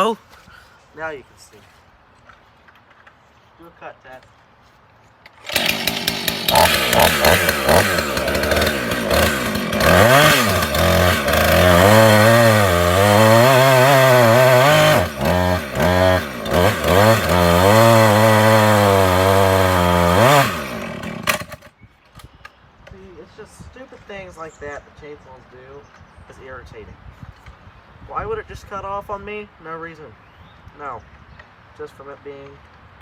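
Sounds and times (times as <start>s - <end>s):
chainsaw running at high revs: 5.4s - 21.7s.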